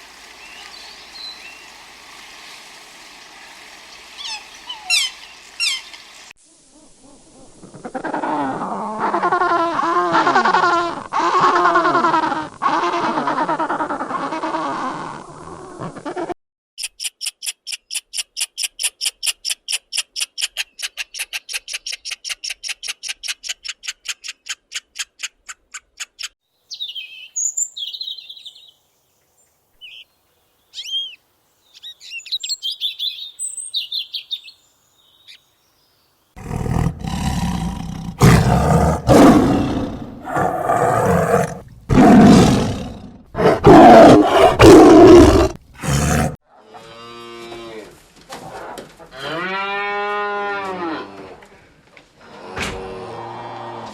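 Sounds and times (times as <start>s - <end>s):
short bird chirps: 26.7s - 28.8s, 30.7s - 35.4s
large animal roaring: 36.4s - 46.4s.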